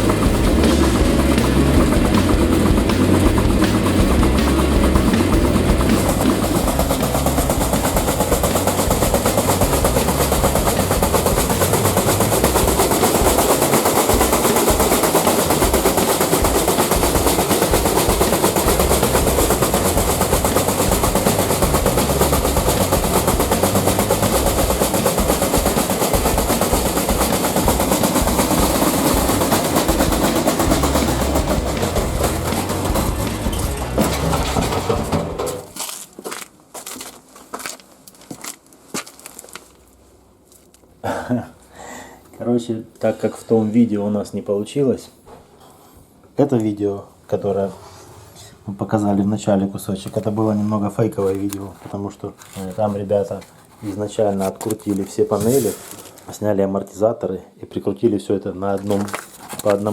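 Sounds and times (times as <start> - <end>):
metal banging in drum: 0.0 - 35.8
washing machine spinning: 0.0 - 35.8.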